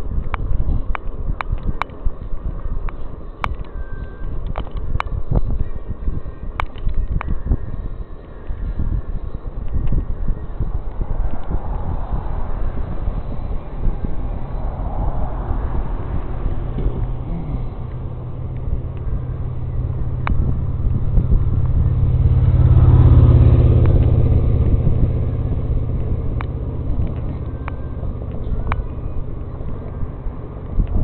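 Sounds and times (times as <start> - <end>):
steady low rumble: 0.0 - 31.0
car passing by: 10.8 - 31.0.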